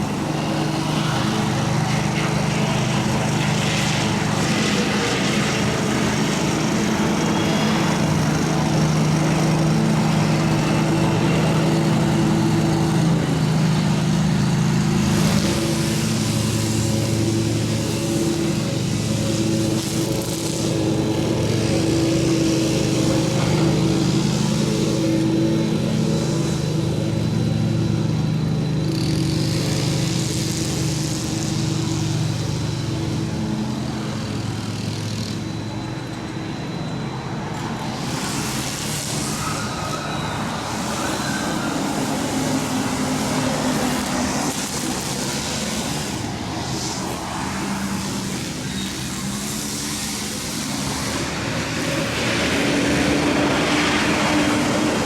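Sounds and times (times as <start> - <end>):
engine drone: 0.0 - 55.0
rushing noise: 30.7 - 55.0.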